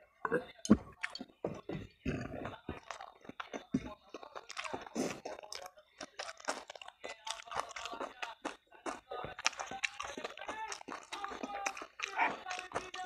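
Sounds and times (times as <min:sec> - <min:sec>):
chewing noodles: 0:00.2 - 0:13.0
wet mouth clicks and smacks: 0:00.6 - 0:13.0.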